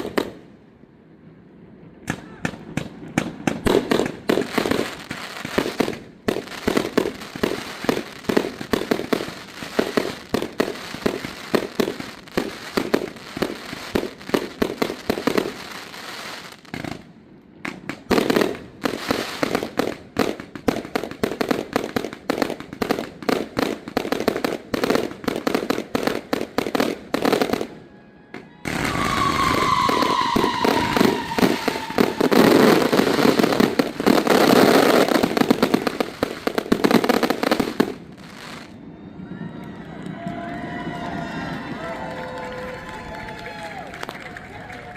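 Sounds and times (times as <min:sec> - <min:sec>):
fireworks bangs and crackles: 0:00.0 - 0:44.8
falling firework whistle: 0:27.1 - 0:43.9.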